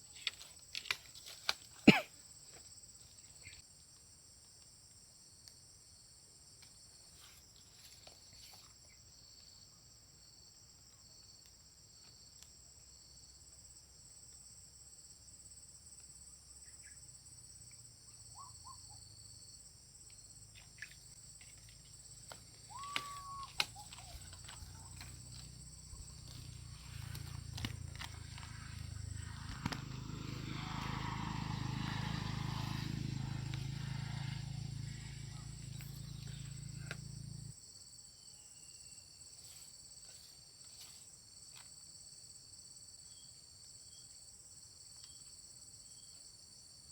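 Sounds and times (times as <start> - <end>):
insects buzzing: 0.0 - 46.9
whistle-like call with clicks: 22.6 - 24.3.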